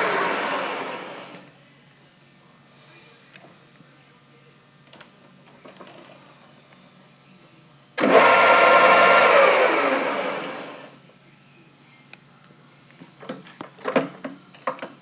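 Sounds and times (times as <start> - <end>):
metal lathe whining: 0.0 - 1.4, 8.0 - 10.9.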